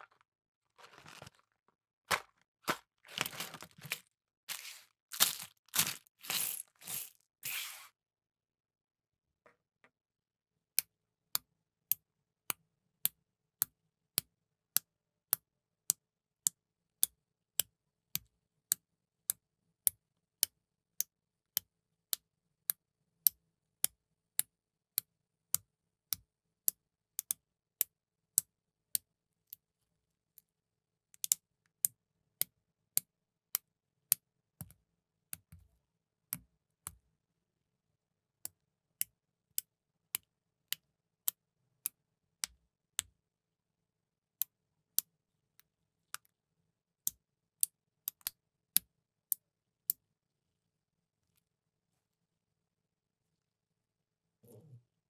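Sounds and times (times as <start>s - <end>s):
plastic pieces clicking together: 2.1s - 7.2s.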